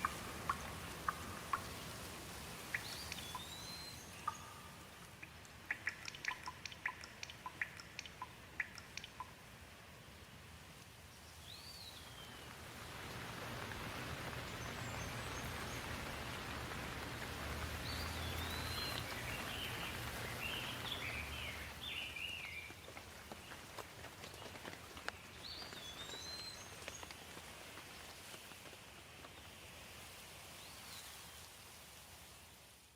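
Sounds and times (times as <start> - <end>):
rain falling: 0.0 - 32.9
bird singing whistled phrases: 2.8 - 4.6.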